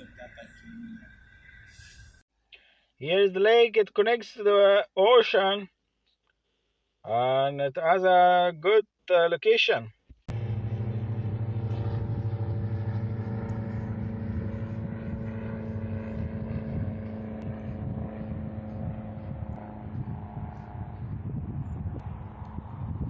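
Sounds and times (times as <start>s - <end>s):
engine drone: 10.3s - 23.0s.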